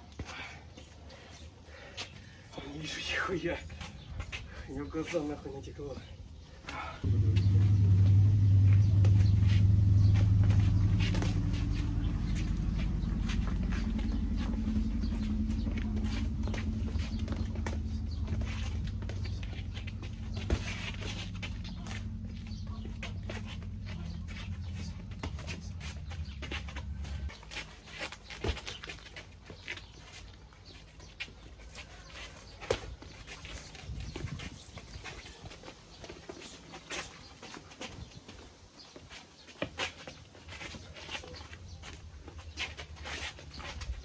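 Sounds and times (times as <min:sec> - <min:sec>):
motor humming: 0:07.0 - 0:27.3.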